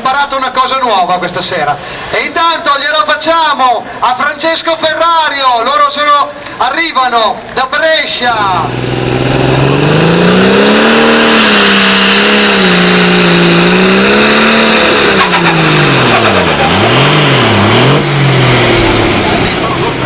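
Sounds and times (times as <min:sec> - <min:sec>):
tractor engine running under load: 0:08.5 - 0:20.0.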